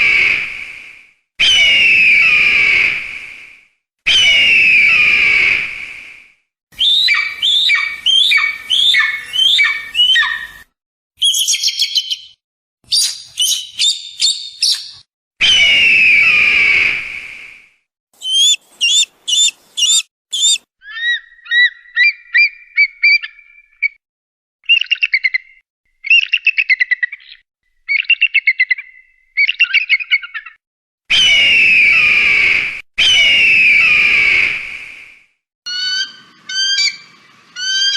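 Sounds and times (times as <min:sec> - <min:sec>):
bird chirps and trills: 0:06.8 - 0:10.6, 0:11.2 - 0:15.0, 0:18.2 - 0:24.0, 0:35.7 - 0:37.9
kite whinnying call: 0:18.2 - 0:20.7.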